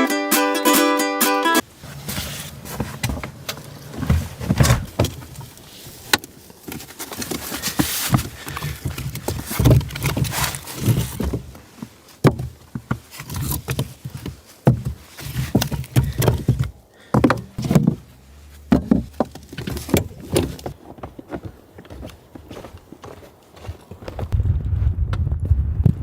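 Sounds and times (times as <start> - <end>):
rustling: 1.6 - 24.4
knocks and thumps: 12.2 - 21.2.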